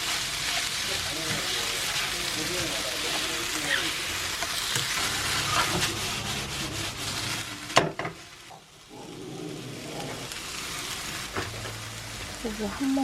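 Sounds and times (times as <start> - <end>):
spatula scraping and stirring: 0.0 - 8.8
food sizzling in a frying pan: 0.0 - 13.0.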